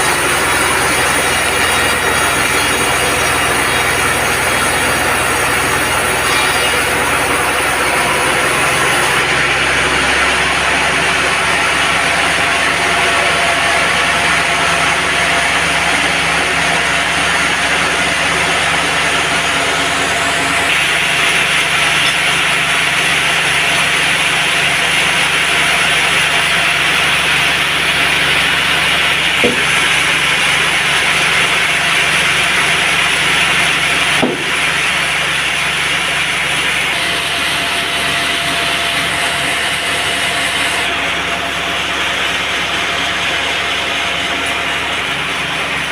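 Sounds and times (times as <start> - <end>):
band saw cutting wood: 0.0 - 45.9
short knocks: 29.4 - 29.8, 34.2 - 34.6.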